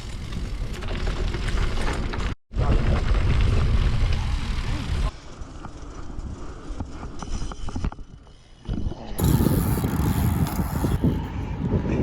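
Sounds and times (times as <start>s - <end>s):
wind noise on microphone: 6.1s - 12.0s.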